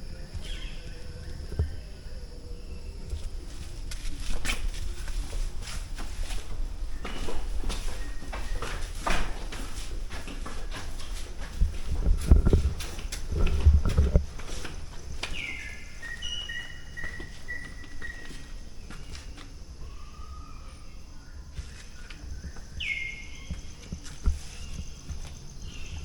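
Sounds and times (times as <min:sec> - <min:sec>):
light footsteps: 0:03.1 - 0:19.6.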